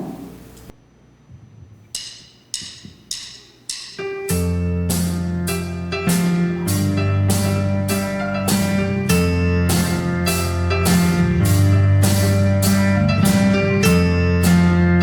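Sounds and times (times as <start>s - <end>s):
drum kit with cymbals: 1.9s - 15.0s
keyboard chords: 4.0s - 15.0s
electric bass notes: 4.2s - 15.0s
guitar chords: 4.2s - 15.0s.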